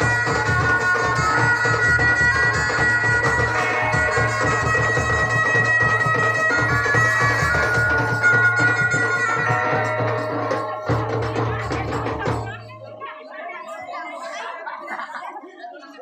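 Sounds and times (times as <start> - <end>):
reedy double-reed wind instrument: 0.0 - 11.9
drums beating: 0.0 - 13.3.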